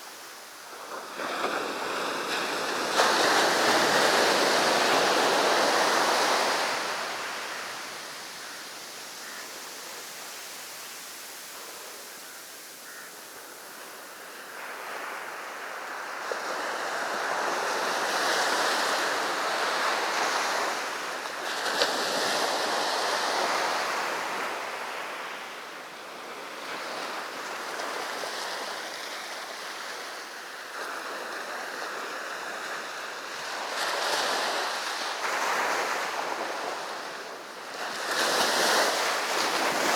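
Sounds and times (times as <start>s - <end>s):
sea surf breaking on beach: 0.0s - 39.9s.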